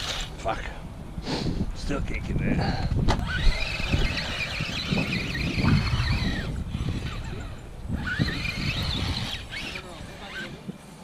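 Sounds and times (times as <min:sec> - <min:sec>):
wind rumbling on microphone: 0:00.0 - 0:11.0
electric motor whining: 0:03.1 - 0:10.7.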